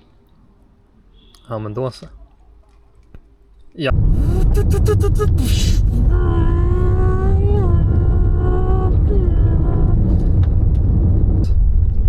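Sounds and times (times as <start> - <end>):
vehicle rumble from inside cabin: 3.9 - 12.0
person humming held notes: 4.1 - 9.9.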